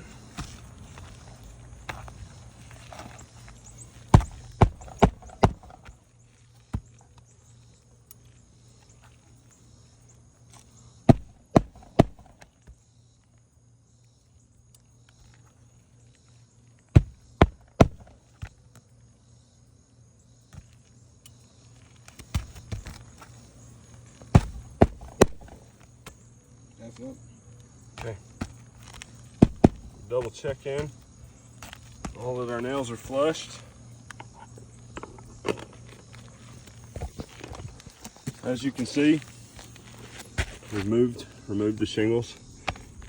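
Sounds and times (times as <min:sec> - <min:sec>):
hammer driving nails: 0:04.2 - 0:05.9, 0:11.1 - 0:12.4, 0:17.0 - 0:18.2, 0:24.4 - 0:25.6, 0:29.4 - 0:29.9.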